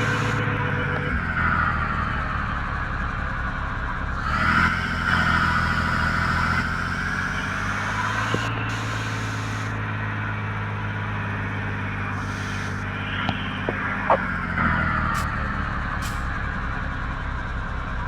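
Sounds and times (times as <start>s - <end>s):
high-pitched whine: 0.0s - 18.0s
truck engine running: 0.0s - 18.0s.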